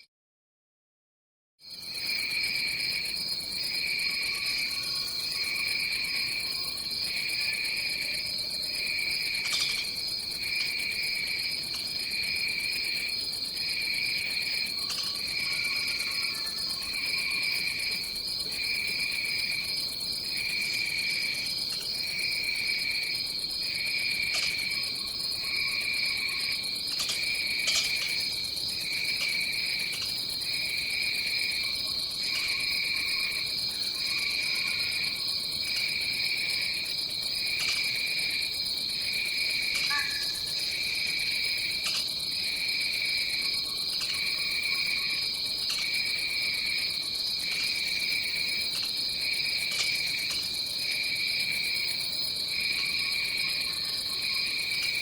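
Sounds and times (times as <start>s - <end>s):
pulsing insect trill: 2.2s - 55.0s.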